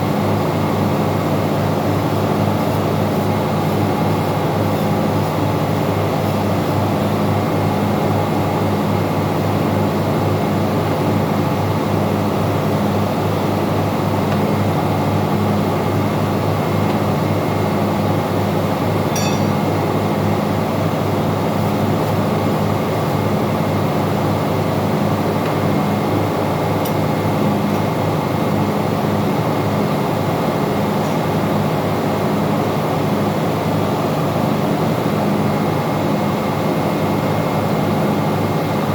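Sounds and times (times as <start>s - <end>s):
engine-room machinery droning hum: 0.0s - 38.9s.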